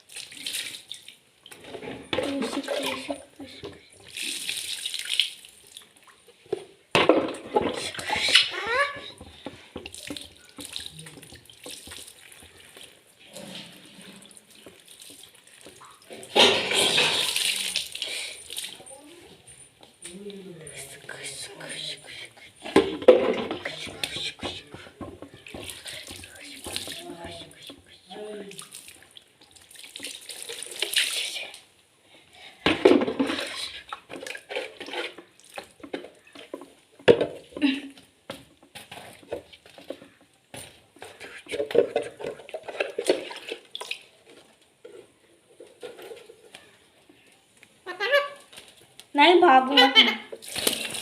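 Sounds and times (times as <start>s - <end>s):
water running and splashing: 0.0s - 6.5s, 7.4s - 19.4s, 20.8s - 31.7s, 50.2s - 51.0s
water dripping: 0.0s - 6.6s, 7.8s - 19.2s, 19.8s - 31.7s, 35.3s - 44.6s, 48.4s - 51.0s
water splashing: 7.5s - 19.0s, 50.2s - 51.0s
loud splash or clatter: 16.2s - 17.9s, 50.4s - 51.0s.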